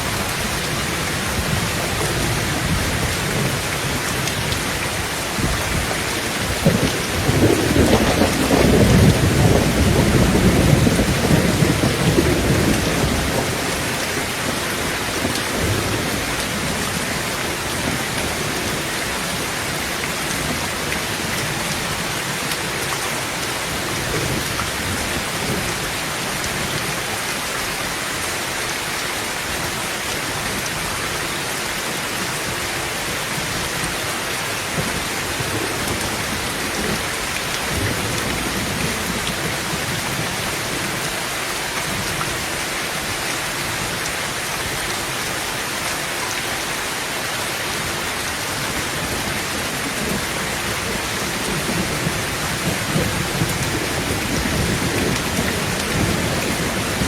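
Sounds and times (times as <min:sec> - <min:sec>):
thunder rumbling: 0:00.0 - 0:19.3, 0:34.6 - 0:41.0, 0:48.6 - 0:57.0
heavy rain on a tin roof: 0:00.0 - 0:57.0.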